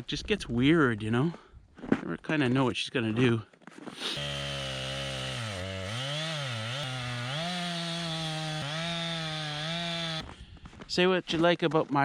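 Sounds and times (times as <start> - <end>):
chainsaw cutting wood: 3.9 - 10.4.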